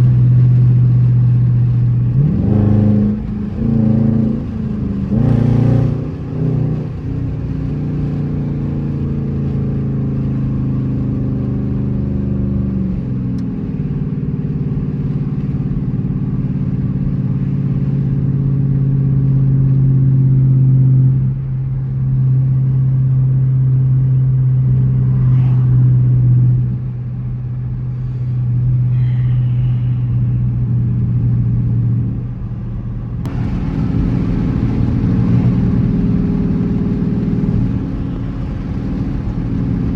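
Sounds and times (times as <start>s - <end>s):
car engine drone: 0.0s - 39.9s.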